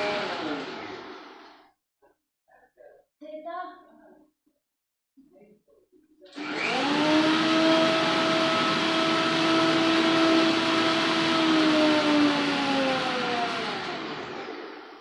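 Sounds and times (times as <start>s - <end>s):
blender motor whine: 0.0s - 1.6s, 6.3s - 15.0s.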